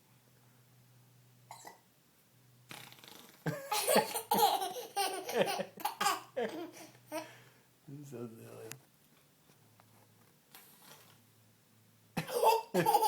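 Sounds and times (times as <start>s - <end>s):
little girl laughing: 3.5s - 7.3s, 12.2s - 13.0s.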